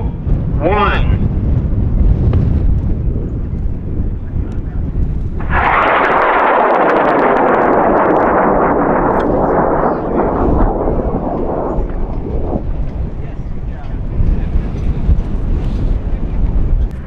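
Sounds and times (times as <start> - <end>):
wind on microphone: 0.0 - 17.0
rocket motor roaring: 4.6 - 13.7.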